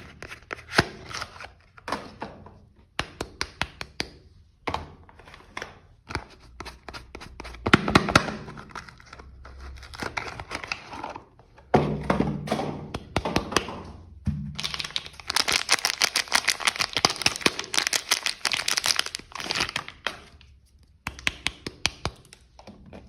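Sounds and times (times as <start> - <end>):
wrapping crinkling and tearing: 8.8 - 11.3, 14.6 - 21.0.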